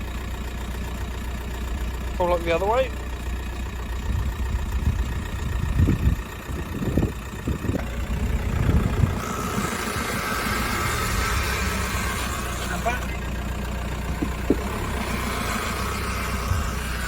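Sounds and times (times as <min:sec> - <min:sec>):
diesel engine idling: 0:00.0 - 0:17.0
creaking groans from car suspension: 0:04.1 - 0:17.0.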